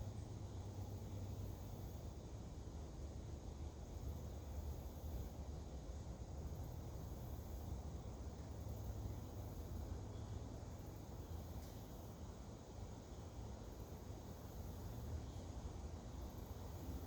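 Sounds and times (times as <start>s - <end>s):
high-pitched insect chorus: 3.8s - 17.0s.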